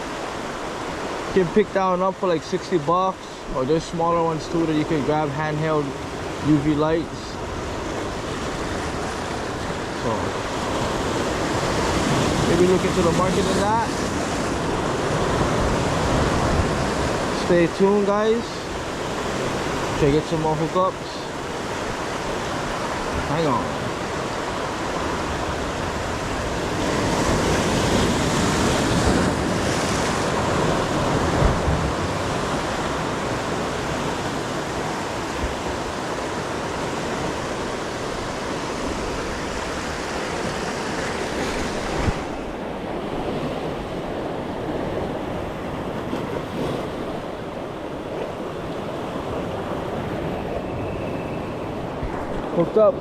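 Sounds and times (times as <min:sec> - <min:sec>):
ocean surf washing in: 0:00.0 - 0:53.0
wind on microphone: 0:21.4 - 0:52.6.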